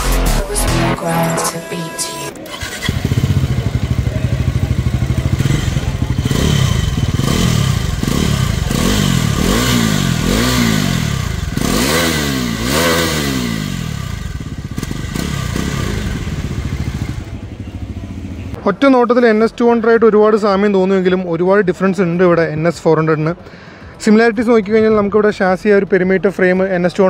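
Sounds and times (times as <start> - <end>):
motorcycle engine idling and revving: 2.5 - 18.6.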